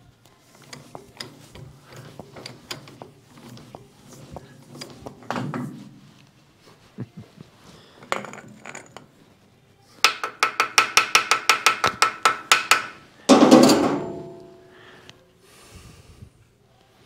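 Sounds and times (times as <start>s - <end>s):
ringing metal clank: 13.3s - 14.8s.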